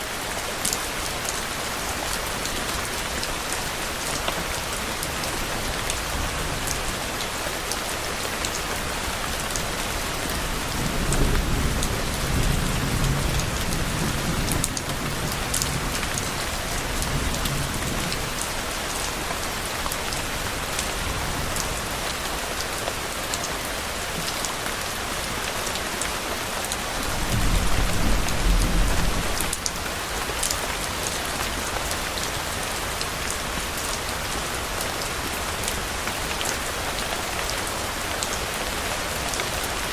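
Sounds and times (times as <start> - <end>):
steady rain falling: 0.0 - 39.9
thunder rumbling: 26.9 - 29.8.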